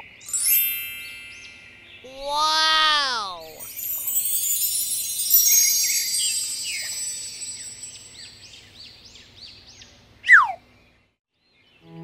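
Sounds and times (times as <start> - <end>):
shimmering chime: 0.2 - 2.1, 3.6 - 8.8.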